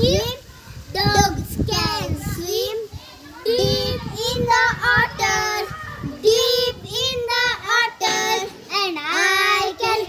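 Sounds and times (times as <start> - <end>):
young children singing: 3.4 - 10.0.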